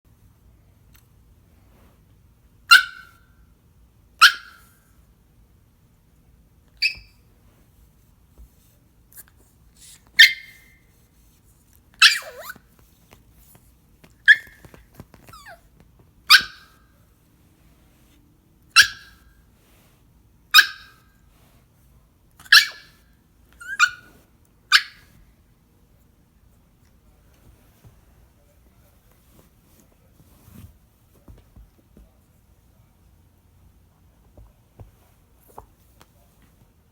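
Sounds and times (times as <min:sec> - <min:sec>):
dog barking high-pitched: 0:02.7 - 0:03.2, 0:04.2 - 0:04.7, 0:10.2 - 0:10.7, 0:12.0 - 0:12.6, 0:16.3 - 0:16.8, 0:18.8 - 0:19.2, 0:20.5 - 0:21.0, 0:22.4 - 0:23.0, 0:24.7 - 0:25.1.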